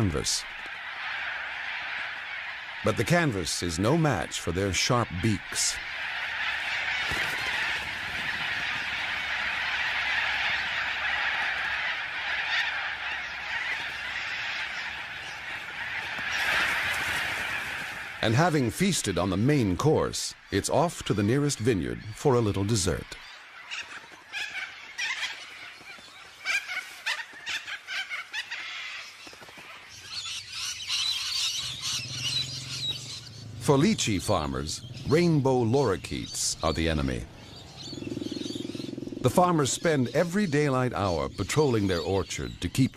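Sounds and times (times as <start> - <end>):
flock of cockatoos screeching: 0.0 - 3.3, 5.5 - 18.2, 23.2 - 33.4.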